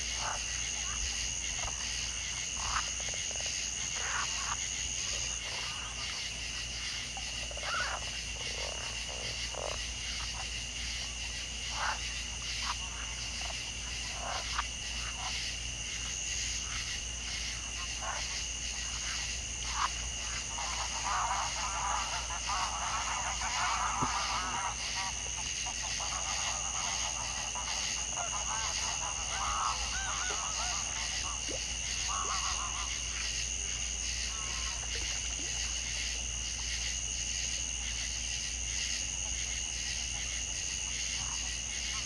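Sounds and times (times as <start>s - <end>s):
frogs croaking: 0.0s - 42.0s
high-pitched insect chorus: 0.0s - 42.0s.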